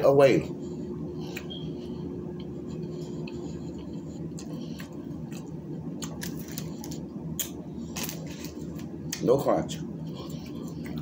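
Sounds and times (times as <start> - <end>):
steady low hum: 0.0 - 11.0
person chewing wetly: 1.2 - 7.6, 10.0 - 11.0.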